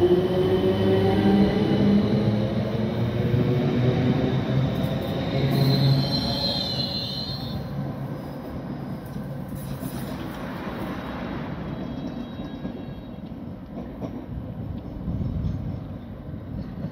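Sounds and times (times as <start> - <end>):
train passing with low hum: 0.0 - 16.9
train wheels squealing: 4.8 - 7.8, 9.5 - 13.6.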